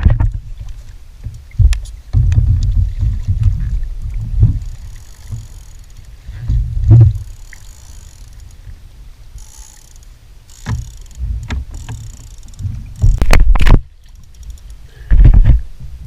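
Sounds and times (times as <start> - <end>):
water splashing against kayak hull: 0.0 - 16.0
low thumping on microphone: 1.6 - 4.7.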